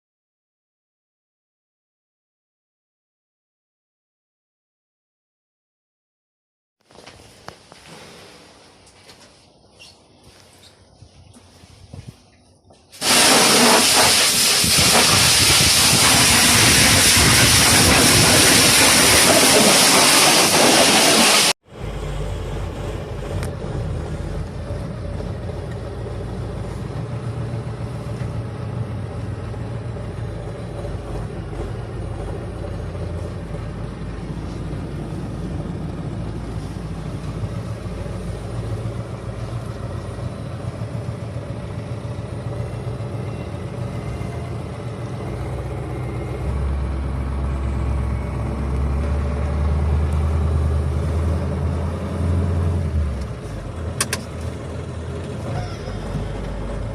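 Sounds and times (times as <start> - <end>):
truck engine running: 13.0 - 56.9.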